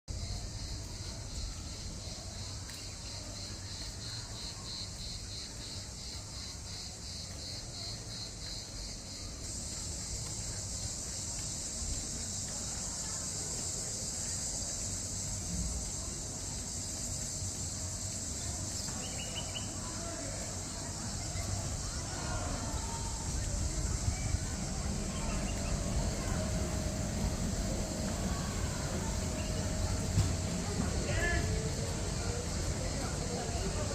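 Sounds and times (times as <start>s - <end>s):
insects chirping: 0.1s - 33.9s
wind rumble on microphone: 21.5s - 33.9s.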